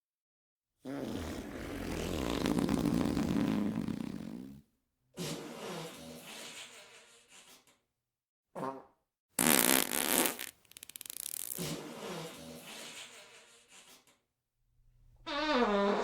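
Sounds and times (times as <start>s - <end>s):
fart sound effects: 0.9s - 4.6s, 8.6s - 13.2s, 15.3s - 16.0s.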